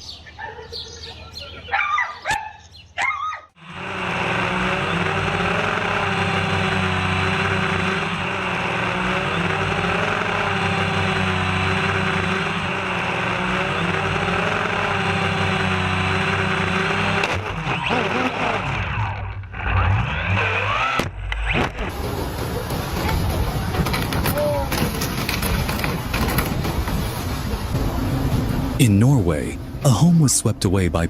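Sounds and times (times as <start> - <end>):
motor running with hissing rush: 3.6 - 18.6.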